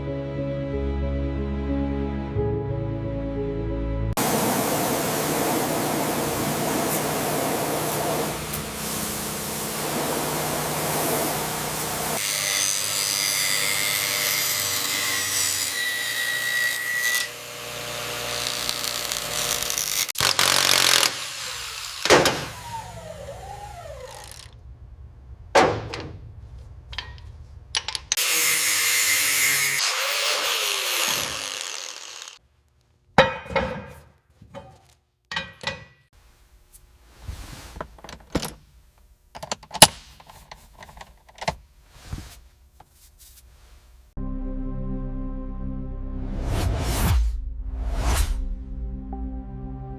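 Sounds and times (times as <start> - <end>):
power tool running: 4.2 - 24.6, 28.2 - 32.4.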